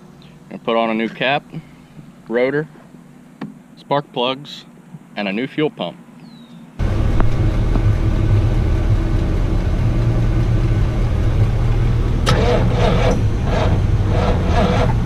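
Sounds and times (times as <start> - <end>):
vehicle engine running: 6.8 - 15.0.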